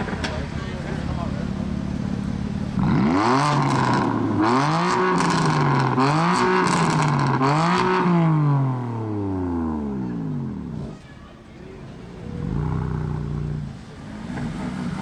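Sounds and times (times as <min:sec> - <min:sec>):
car engine revving hard: 0:02.8 - 0:10.8.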